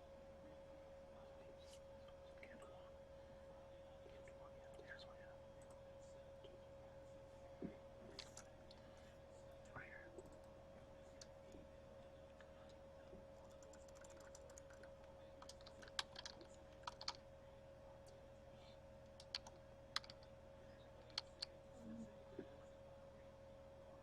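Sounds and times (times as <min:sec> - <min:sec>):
electrical hum: 0:00.0 - 0:24.0
keyboard clicks: 0:13.4 - 0:17.2, 0:19.1 - 0:20.3, 0:21.0 - 0:21.5.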